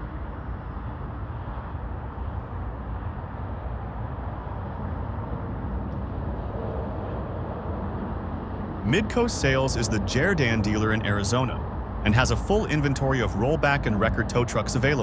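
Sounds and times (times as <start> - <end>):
low vehicle rumble: 8.3 - 15.0.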